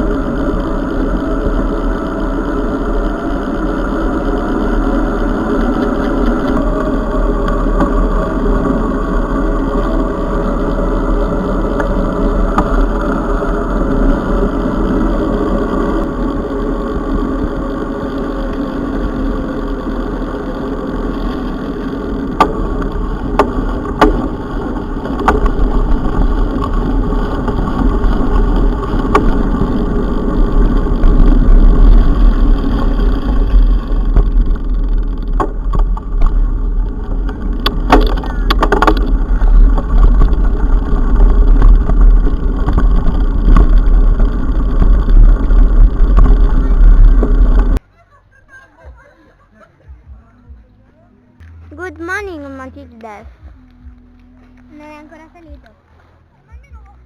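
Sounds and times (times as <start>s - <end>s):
wind rumble on microphone: 0.0s - 47.8s
tyre and trail noise: 0.0s - 57.0s
bike knocks and rattles: 22.0s - 47.8s.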